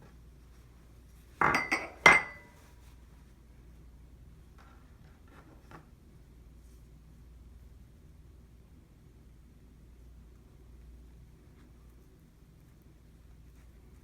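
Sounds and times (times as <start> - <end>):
kitchenware clinking: 1.4 - 2.6.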